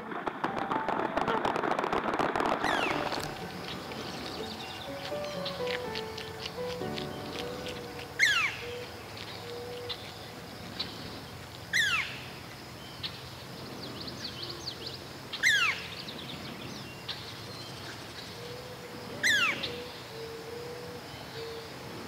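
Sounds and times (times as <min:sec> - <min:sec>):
bird downward-sliding whistle: 0:02.5 - 0:06.3
bird chirps: 0:02.6 - 0:10.2.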